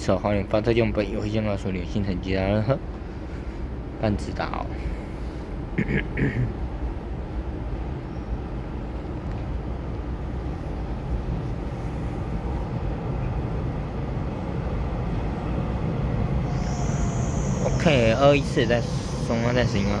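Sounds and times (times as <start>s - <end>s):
electric train rumbling: 0.0s - 20.0s
train hiss: 16.2s - 20.0s.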